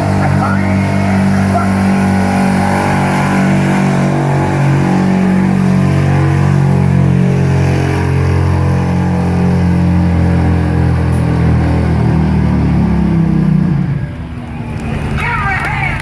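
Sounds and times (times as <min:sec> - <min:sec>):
truck engine at high revs: 0:00.0 - 0:16.0.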